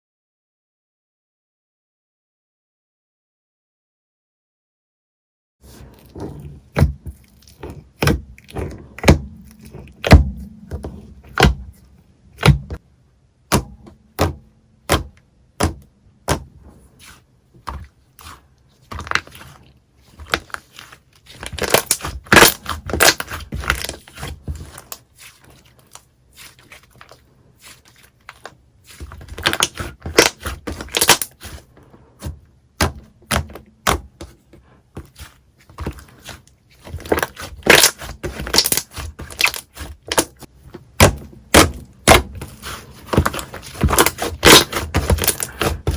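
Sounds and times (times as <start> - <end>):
slime crackling: 35.9 - 45.9.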